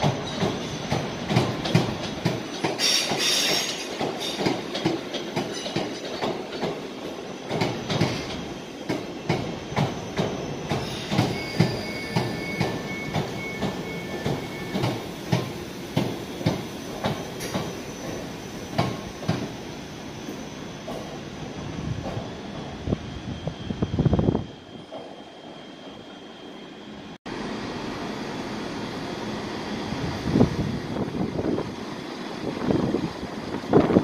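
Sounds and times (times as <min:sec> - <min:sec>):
train wheels clacking: 0:00.0 - 0:19.6
wheel squeal: 0:09.6 - 0:15.0, 0:16.8 - 0:19.3.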